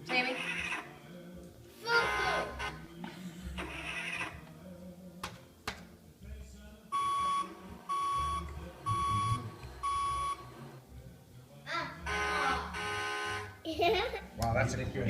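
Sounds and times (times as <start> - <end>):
toy truck back-up beeper: 6.9 - 10.7, 12.1 - 13.5.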